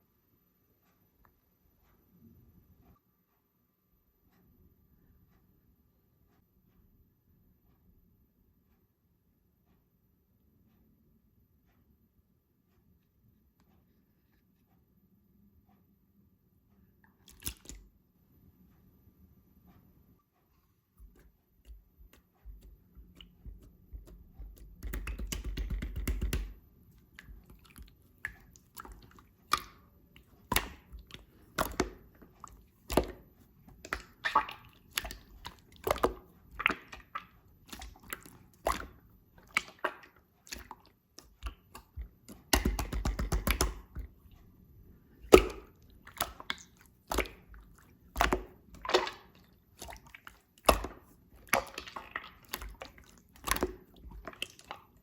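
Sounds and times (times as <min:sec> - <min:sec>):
slime clicking and popping: 0:21.7 - 0:26.6, 0:30.4 - 0:32.1, 0:40.6 - 0:44.1, 0:45.3 - 0:47.5.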